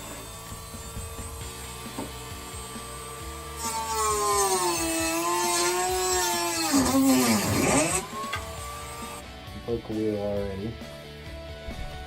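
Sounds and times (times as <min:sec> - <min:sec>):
rotary tool whining: 0:00.0 - 0:09.2.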